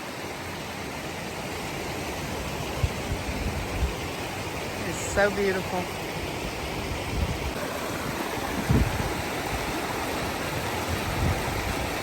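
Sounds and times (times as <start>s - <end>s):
stream rushing over boulders: 0.0s - 12.0s.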